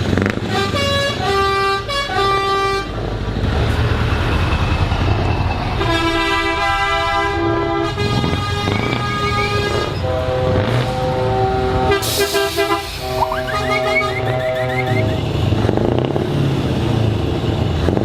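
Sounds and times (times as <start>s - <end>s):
diesel engines rumbling: 0.0s - 18.0s
truck horn blasts: 0.2s - 3.0s, 5.8s - 15.6s.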